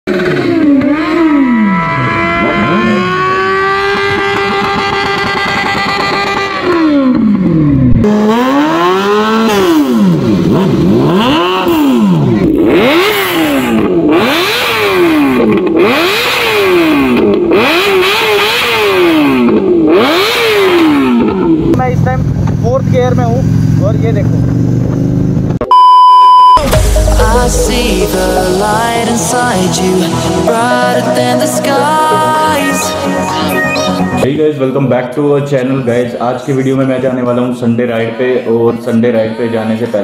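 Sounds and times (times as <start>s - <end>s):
motorcycle engines revving: 0.1s - 25.6s.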